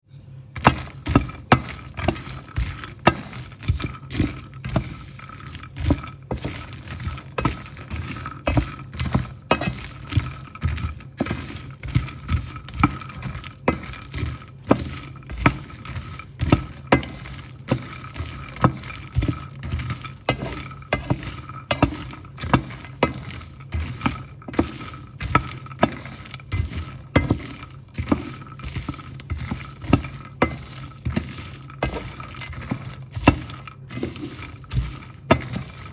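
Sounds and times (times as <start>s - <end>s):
nuts rattling in pan: 0.5s - 35.9s.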